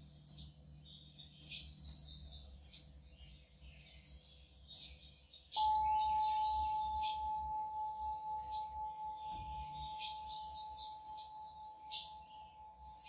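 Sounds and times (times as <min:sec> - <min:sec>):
small birds chirping: 0:00.0 - 0:13.0
singing bowl ringing: 0:05.6 - 0:13.0.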